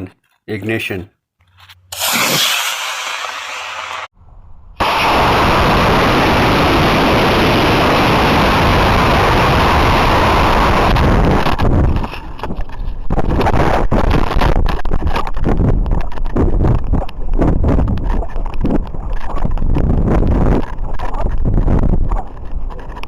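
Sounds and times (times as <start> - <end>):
model rocket motor hissing: 1.9 - 4.1
rushing rocket exhaust and air: 1.9 - 14.2.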